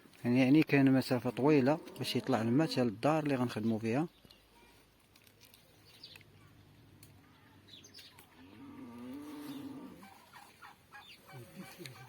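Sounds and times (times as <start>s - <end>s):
birds chirping: 0.0s - 4.9s, 5.5s - 12.0s.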